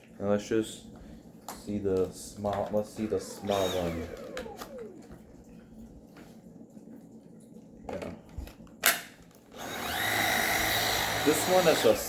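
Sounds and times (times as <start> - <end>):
vacuum cleaner motor spinning down: 2.6 - 5.2, 9.6 - 12.0.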